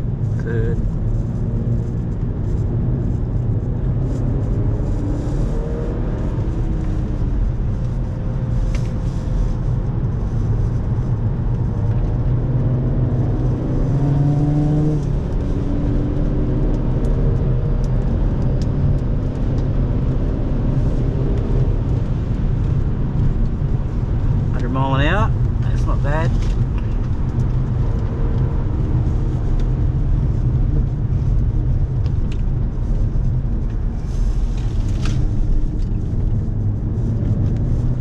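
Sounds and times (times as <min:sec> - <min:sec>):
car engine accelerating hard: 0:00.0 - 0:38.0
tyre and wind noise: 0:00.0 - 0:38.0.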